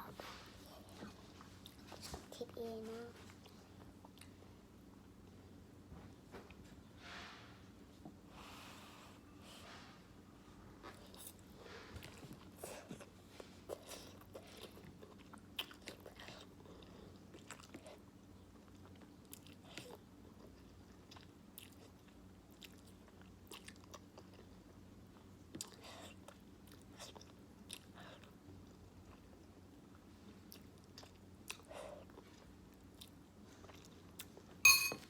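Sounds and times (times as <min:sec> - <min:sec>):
person chewing noodles: 0:03.4 - 0:04.4, 0:10.8 - 0:34.4.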